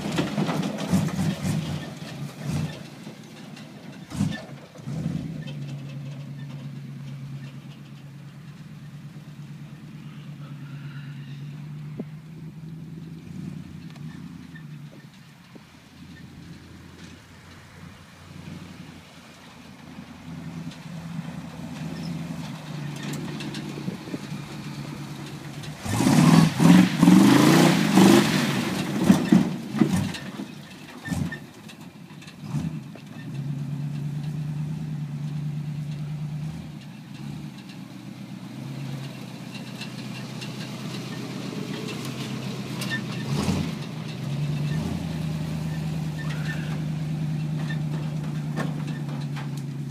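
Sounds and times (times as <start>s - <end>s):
truck engine revving: 0.0s - 49.9s.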